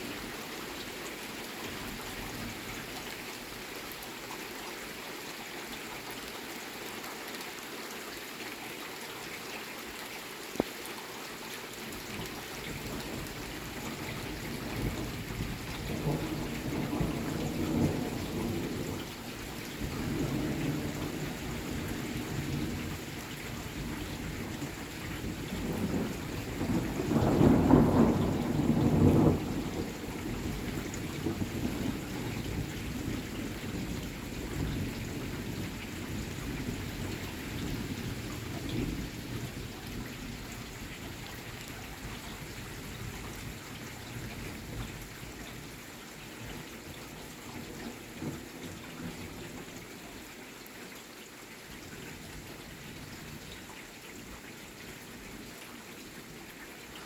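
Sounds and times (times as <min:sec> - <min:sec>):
steady rain: 0:00.0 - 0:57.0
thunderclap rumbling: 0:12.8 - 0:40.4.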